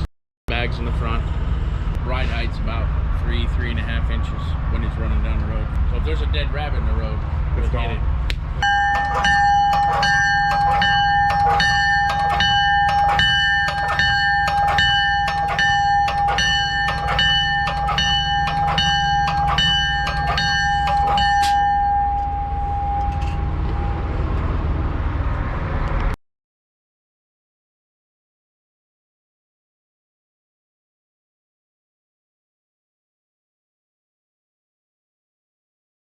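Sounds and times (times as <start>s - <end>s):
bell ringing: 8.6s - 24.1s
diesel engine idling: 8.6s - 25.3s.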